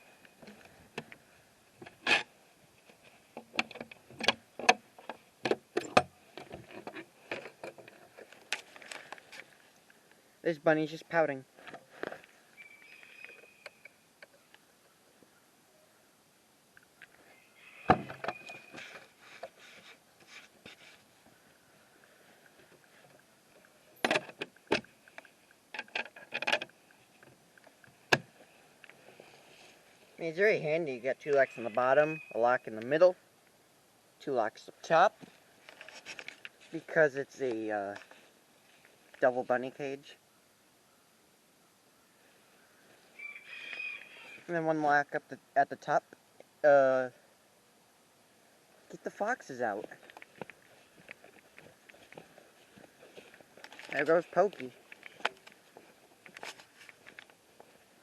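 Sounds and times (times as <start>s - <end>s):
sharp clicks and knocks: 3.4s - 9.0s, 23.6s - 28.3s.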